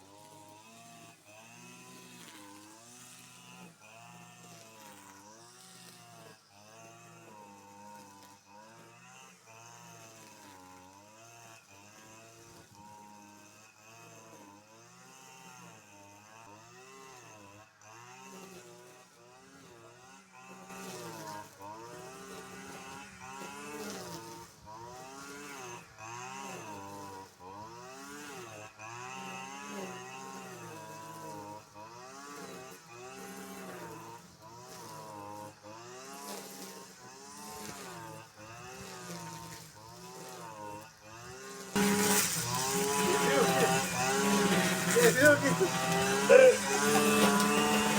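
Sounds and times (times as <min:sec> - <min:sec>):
car engine revving: 0:41.8 - 0:47.9.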